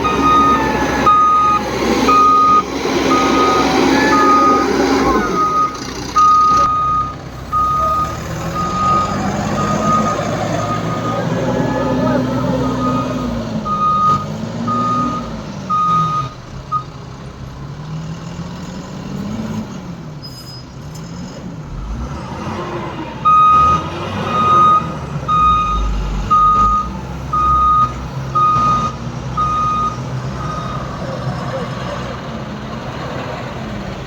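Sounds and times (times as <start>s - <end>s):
reversing alarm beeping: 0.0s - 16.9s, 23.2s - 31.0s
diesel engine: 0.0s - 34.0s.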